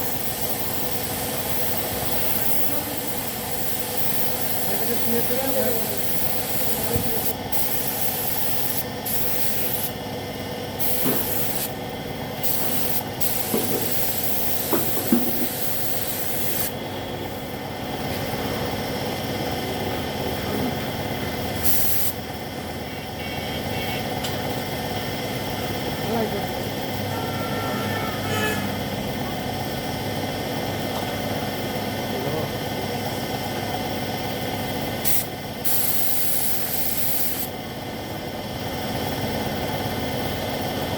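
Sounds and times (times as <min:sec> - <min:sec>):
air spray gun hissing: 0:00.0 - 0:10.0, 0:10.7 - 0:11.8, 0:12.4 - 0:17.4, 0:21.6 - 0:22.2, 0:35.0 - 0:37.6.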